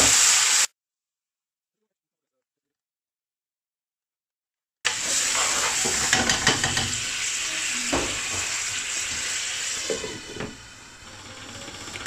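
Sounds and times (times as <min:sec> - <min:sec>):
onions and pepper sizzling: 0:00.0 - 0:00.7, 0:04.9 - 0:12.0.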